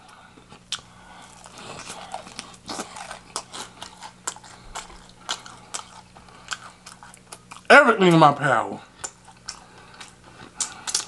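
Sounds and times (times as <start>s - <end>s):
chewing crisp food: 0.0s - 7.7s, 8.8s - 11.0s.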